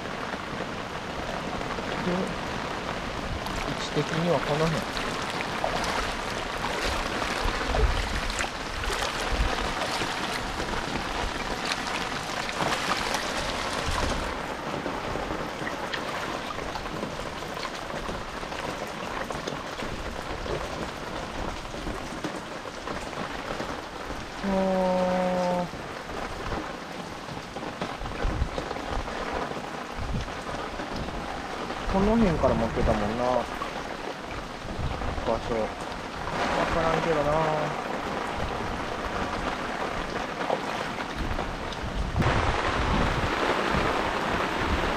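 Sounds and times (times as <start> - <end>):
rain falling: 0.0 - 44.9
raindrop ticks: 15.3 - 42.4.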